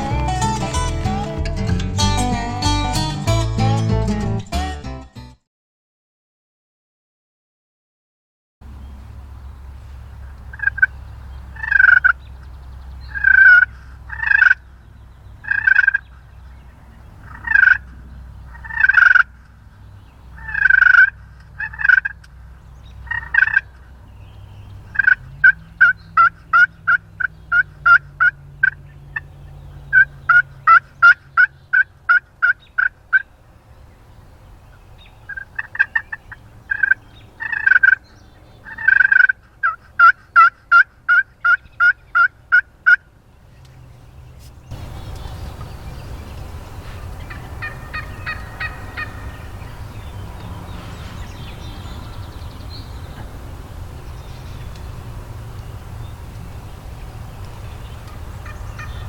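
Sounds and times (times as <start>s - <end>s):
wild turkeys gobbling: 10.3s - 12.2s, 13.1s - 14.6s, 15.4s - 16.2s, 17.2s - 19.3s, 20.3s - 22.3s, 23.0s - 23.9s, 24.9s - 29.3s, 29.9s - 33.3s, 35.2s - 43.1s, 46.3s - 50.0s, 58.0s - 59.0s.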